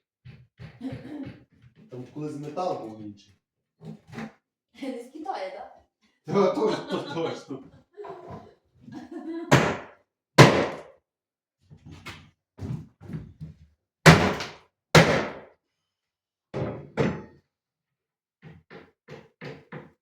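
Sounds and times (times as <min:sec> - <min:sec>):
furniture being knocked apart: 0:09.5 - 0:10.9, 0:14.0 - 0:15.5.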